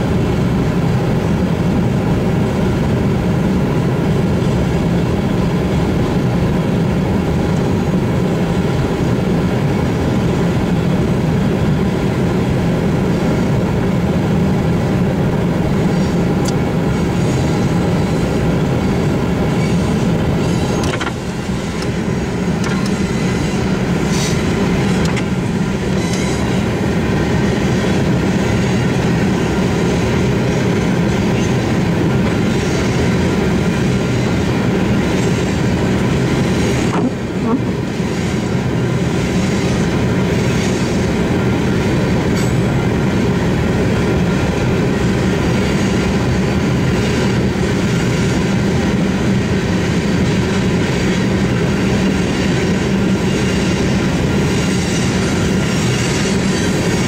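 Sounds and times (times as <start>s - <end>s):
steel train wheels rumbling on rails: 0.0s - 57.0s.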